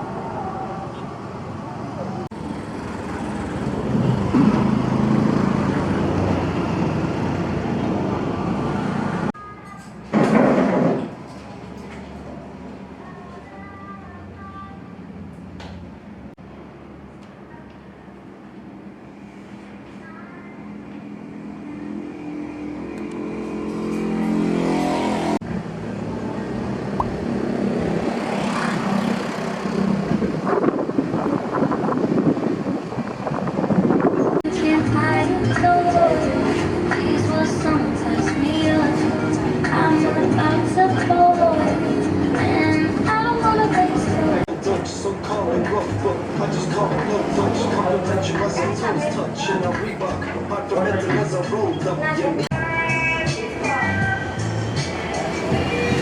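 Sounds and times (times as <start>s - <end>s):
rush of travel noise: 0.0s - 56.0s
engine accelerating: 2.3s - 9.3s, 21.2s - 31.1s, 53.7s - 56.0s
engine humming: 20.6s - 56.0s.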